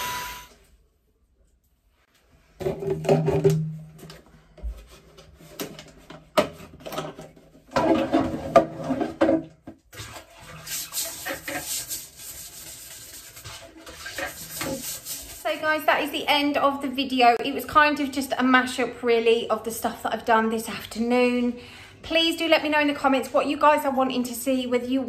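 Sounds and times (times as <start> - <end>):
cloth scrubbing surfaces: 9.9 - 15.7.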